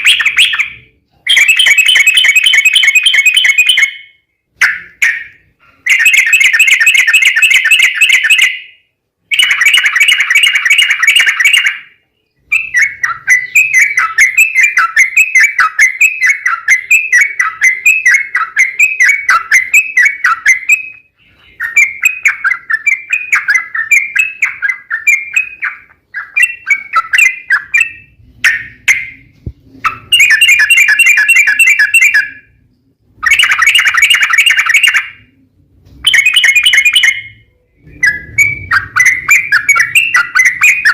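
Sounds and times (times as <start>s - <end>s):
bird chattering song: 0.0s - 35.4s, 36.0s - 40.9s.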